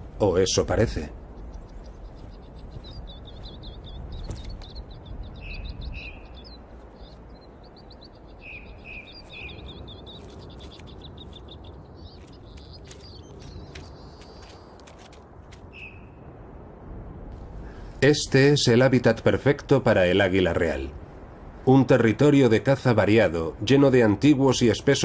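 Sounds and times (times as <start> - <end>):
small songbirds chirping and trilling: 0.0 - 16.5
steady low rumble: 0.0 - 24.9.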